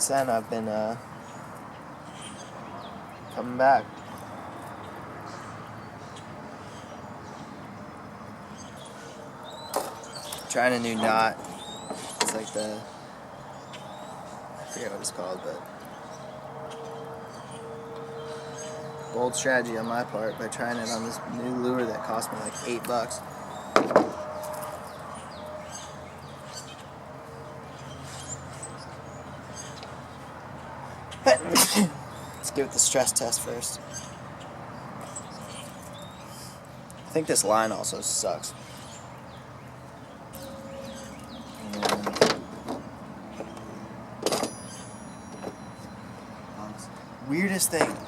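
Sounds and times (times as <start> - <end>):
birds chirping: 0.0 - 48.0
open-air background hiss: 0.0 - 48.0
fishing tackle knocks and clinks: 41.7 - 45.9, 47.8 - 48.0
sharp ringing clink: 44.3 - 46.0.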